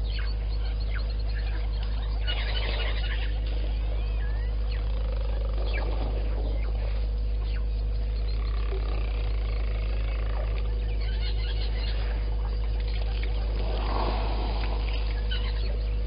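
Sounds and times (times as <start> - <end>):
steady low hum: 0.0 - 16.0
grainy rumbling: 13.4 - 15.3.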